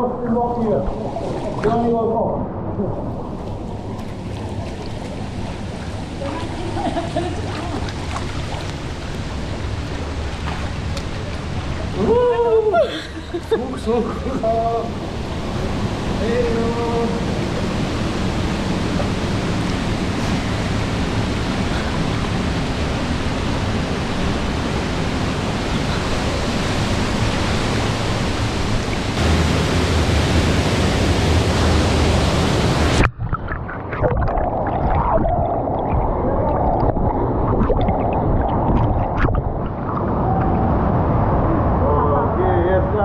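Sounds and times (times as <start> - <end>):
muffled rush of water: 0.0 - 43.0
waterfall rushing: 14.5 - 33.1.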